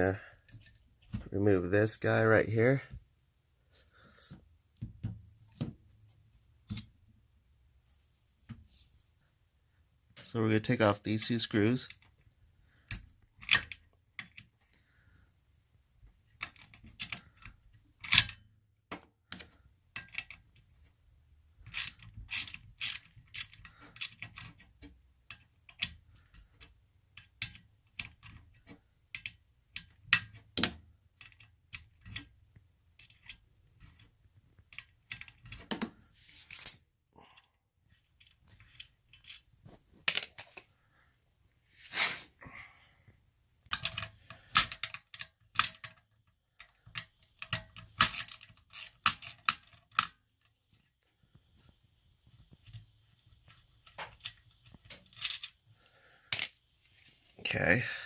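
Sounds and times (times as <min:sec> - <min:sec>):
ratcheting tool clicking: 0:21.6 - 0:24.5, 0:46.6 - 0:50.1.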